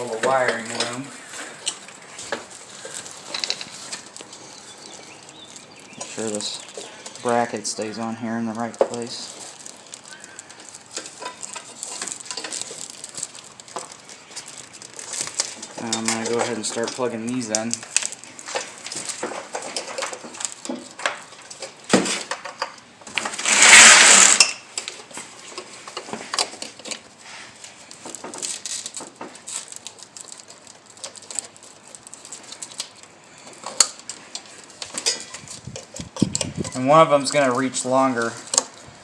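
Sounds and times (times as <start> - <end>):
rustling hiss: 0.0 - 39.0
plastic clicks and rattles: 8.5 - 27.1, 27.9 - 36.8.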